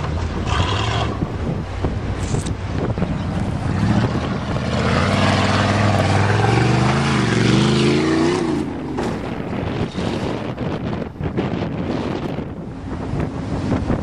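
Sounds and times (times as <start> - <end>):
truck engine revving hard: 0.4 - 1.4, 3.1 - 12.5.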